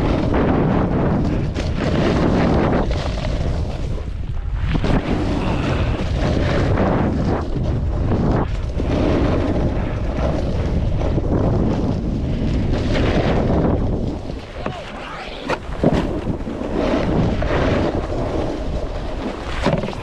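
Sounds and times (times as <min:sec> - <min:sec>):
snowboard sliding over snow: 0:00.0 - 0:20.0
wind buffeting microphone: 0:00.0 - 0:20.0.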